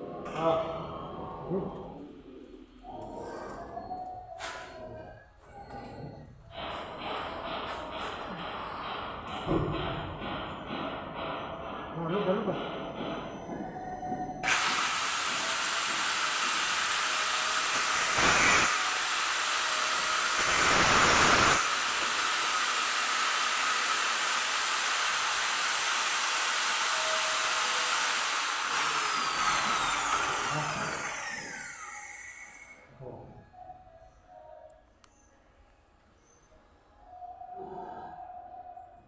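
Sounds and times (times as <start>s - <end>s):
power tool whining: 14.4s - 32.9s.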